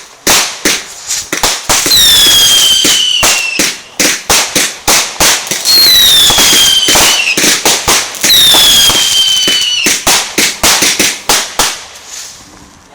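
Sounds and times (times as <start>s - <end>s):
fireworks banging: 0.0s - 12.9s
descending firework whistles: 1.1s - 3.8s, 5.6s - 10.1s.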